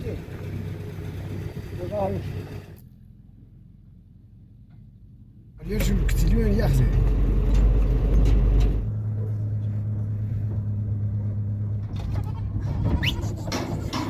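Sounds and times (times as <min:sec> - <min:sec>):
vehicle engine running: 0:00.0 - 0:14.0
flock bleating: 0:12.2 - 0:13.6.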